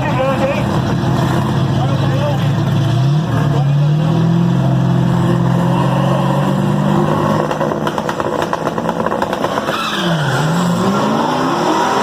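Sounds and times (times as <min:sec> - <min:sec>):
loud car engine revving: 0:00.0 - 0:12.0
exhaust crackles and pops: 0:07.3 - 0:09.8.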